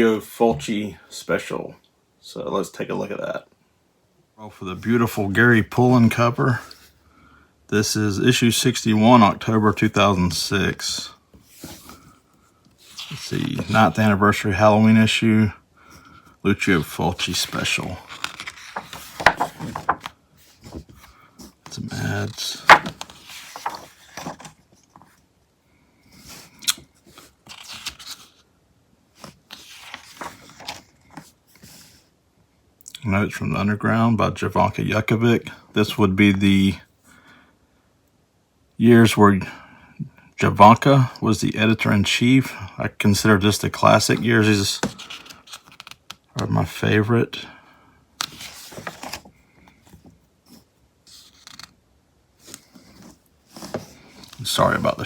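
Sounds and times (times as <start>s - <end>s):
magazine pages rustling: 9.8s - 15.2s, 16.5s - 25.2s, 26.2s - 28.4s, 29.2s - 32.0s, 43.8s - 46.8s, 48.2s - 51.8s, 52.4s - 55.0s.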